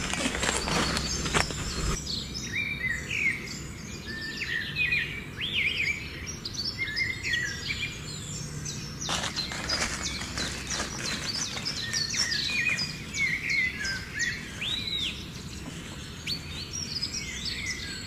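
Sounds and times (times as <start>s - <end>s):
rustling noise: 0.0s - 2.0s, 9.1s - 13.0s
birds chirping: 0.0s - 18.0s.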